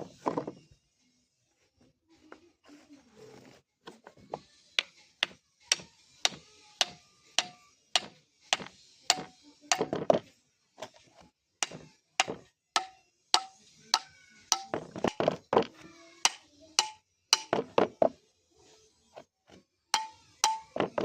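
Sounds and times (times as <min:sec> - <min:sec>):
hammer striking metal on anvil: 0:05.7 - 0:09.9, 0:11.6 - 0:15.2, 0:16.3 - 0:17.7, 0:20.0 - 0:20.8.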